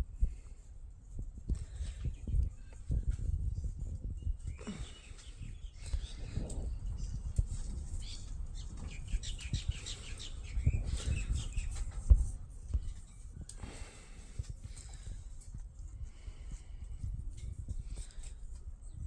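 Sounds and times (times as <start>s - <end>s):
soft low thumps and rustles: 0.0s - 13.5s
bird chirping: 4.2s - 12.2s.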